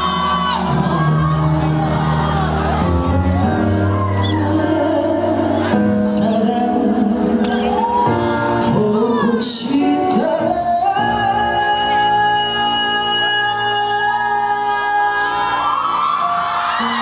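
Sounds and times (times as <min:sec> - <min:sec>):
band playing through sound system: 0:00.0 - 0:17.0.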